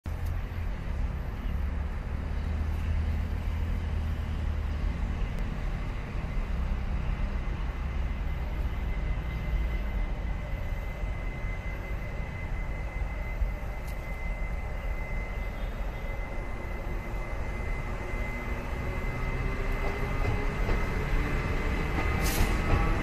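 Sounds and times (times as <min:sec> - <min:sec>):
trains rumbling slowly: 0:00.1 - 0:23.0
thin high whine: 0:05.8 - 0:20.2.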